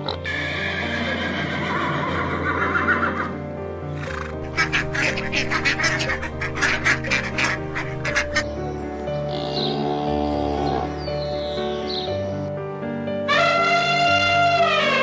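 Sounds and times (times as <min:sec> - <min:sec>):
horse whinnying: 0:00.0 - 0:08.4
background music: 0:00.0 - 0:15.0
ducks quacking: 0:03.9 - 0:08.7.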